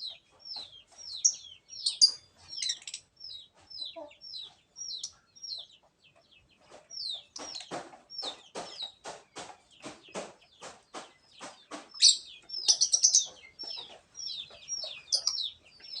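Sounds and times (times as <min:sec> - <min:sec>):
lovebird chirping: 0:00.0 - 0:09.4, 0:11.1 - 0:16.0.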